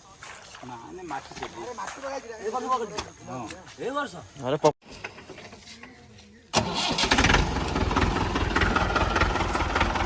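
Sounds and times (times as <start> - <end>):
tractor diesel engine running: 6.5 - 10.0.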